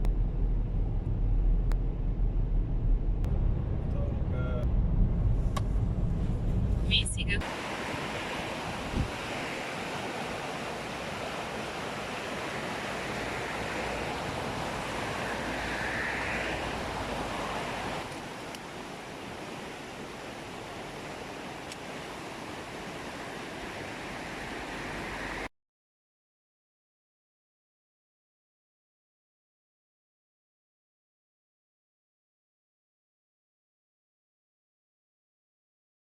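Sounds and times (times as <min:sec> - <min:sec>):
car road and wind noise: 0:00.0 - 0:25.5.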